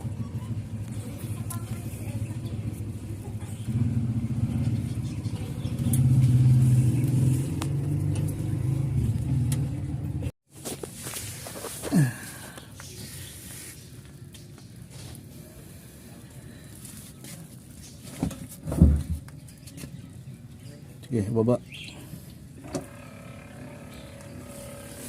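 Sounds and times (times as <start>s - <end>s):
vehicle engine running: 0.0s - 10.3s, 22.1s - 25.0s.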